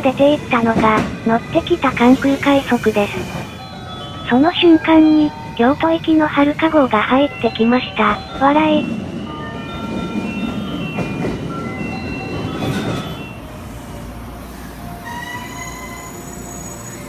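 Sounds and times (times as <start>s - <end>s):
train wheels rumbling on rail: 0.0s - 17.0s
high brake whine: 11.9s - 17.0s.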